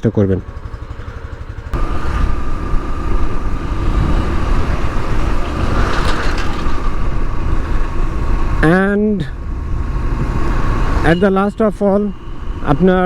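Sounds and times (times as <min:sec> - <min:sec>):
motorcycle engine idling: 0:00.0 - 0:05.7.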